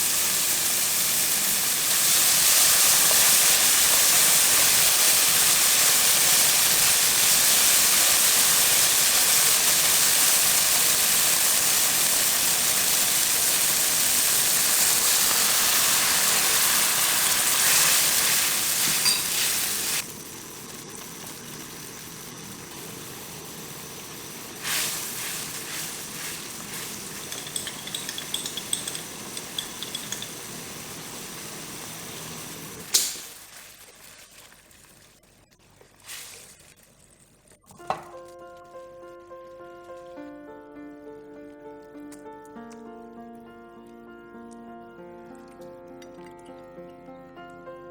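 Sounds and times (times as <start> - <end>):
omelet sizzling in a frying pan: 0.0 - 38.2
light clinks: 27.3 - 30.4.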